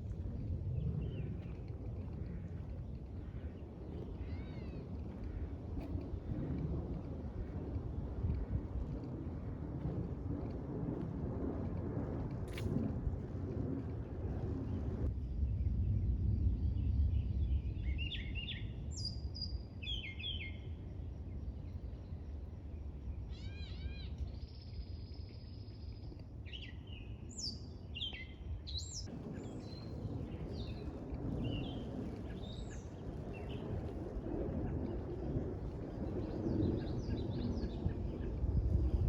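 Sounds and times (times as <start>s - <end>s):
low outdoor rumble: 0.0s - 19.8s, 29.0s - 39.0s.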